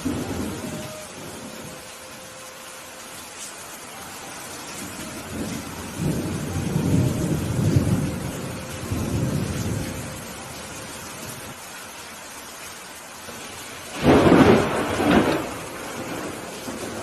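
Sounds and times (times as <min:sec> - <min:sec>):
thunder rumbling: 0:00.0 - 0:02.3, 0:04.2 - 0:11.6, 0:13.3 - 0:17.0
rain hissing: 0:00.0 - 0:17.0.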